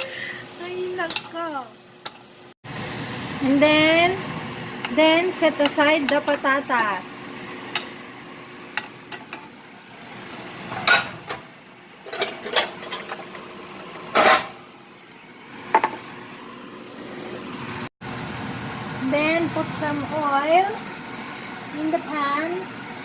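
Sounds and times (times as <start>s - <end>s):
metal utensil scraping pan and dishes: 1.0s - 1.4s, 2.0s - 2.3s, 8.8s - 9.6s, 10.7s - 11.4s, 12.0s - 13.4s, 14.1s - 14.6s.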